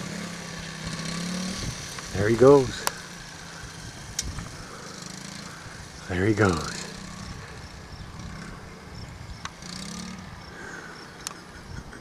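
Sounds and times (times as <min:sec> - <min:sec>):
distant dirt bike engine: 0:00.0 - 0:12.0
sharp clicks: 0:11.2 - 0:11.4.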